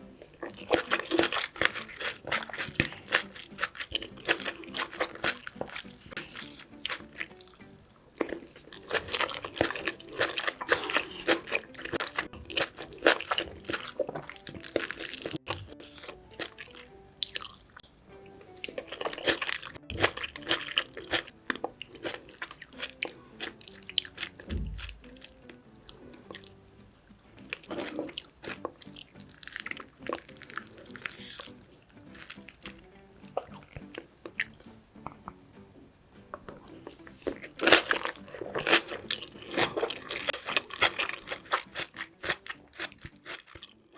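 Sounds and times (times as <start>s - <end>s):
wet chewing and crunching: 0.0s - 35.4s, 36.3s - 43.9s
dull thump: 24.5s - 25.2s.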